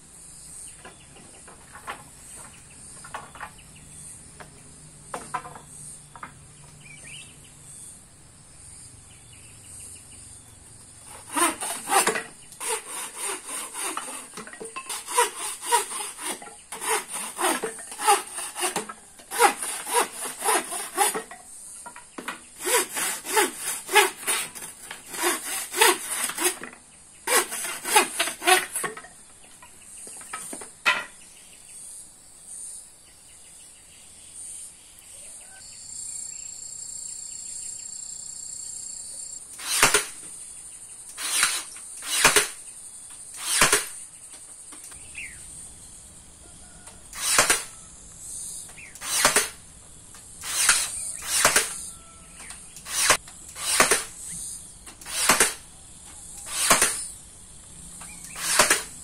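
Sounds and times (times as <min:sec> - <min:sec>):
hand saw cutting wood: 0:11.0 - 0:21.4, 0:22.2 - 0:29.1, 0:39.6 - 0:40.2, 0:41.2 - 0:42.6, 0:43.3 - 0:44.0, 0:47.1 - 0:47.8, 0:49.0 - 0:49.6, 0:50.4 - 0:52.1, 0:52.8 - 0:54.2, 0:55.0 - 0:55.6, 0:56.4 - 0:57.1, 0:58.2 - 0:59.0.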